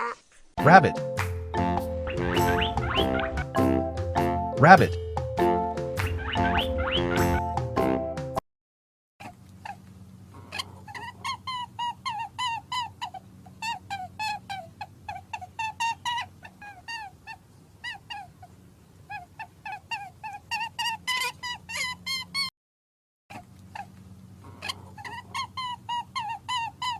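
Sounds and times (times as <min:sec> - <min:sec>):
high squeaky animal calls: 0:02.0 - 0:03.7, 0:05.9 - 0:07.5.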